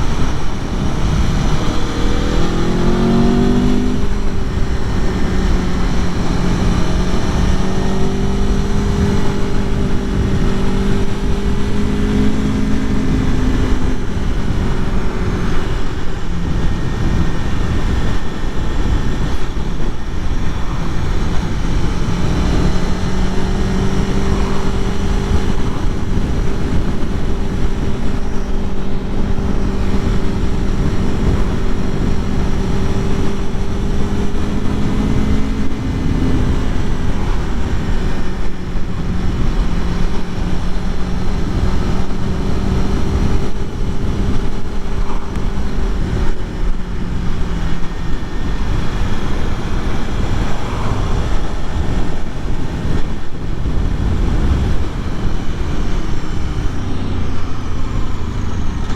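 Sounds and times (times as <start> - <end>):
motorcycle engine running: 0.0 - 58.9
wind rushing over microphone: 0.0 - 58.9.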